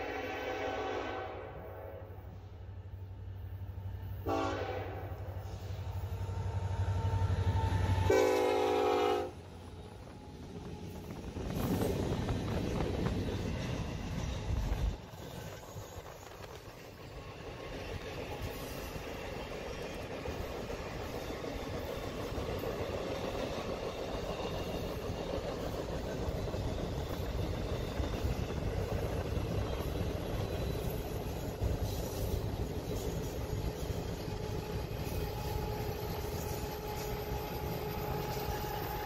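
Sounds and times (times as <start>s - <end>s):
freight train rumbling on rails: 0.0s - 39.0s.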